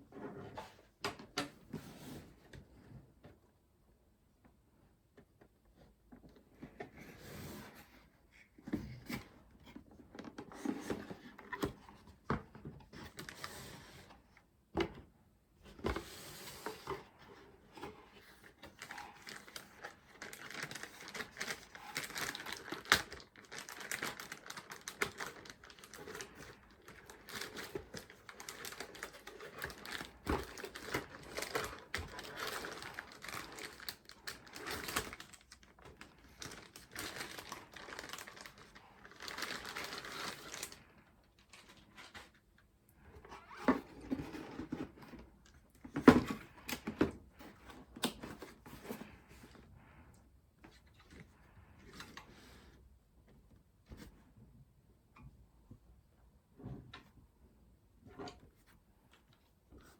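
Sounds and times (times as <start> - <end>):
packaging crinkling and rustling: 16.6 - 50.0.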